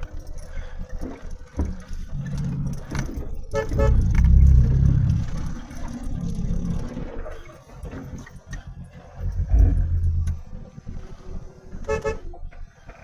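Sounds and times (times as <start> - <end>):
vehicle engine running: 0.0 - 13.0
horn toot: 3.5 - 5.4.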